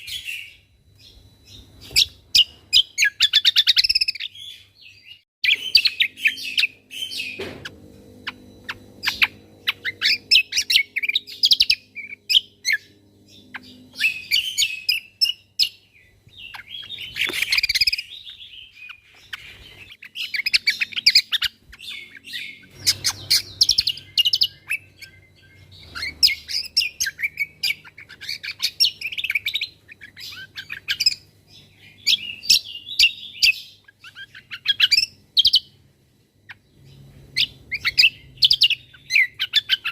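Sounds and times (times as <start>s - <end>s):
bird singing rapid chirps and trills: 0.0s - 39.9s.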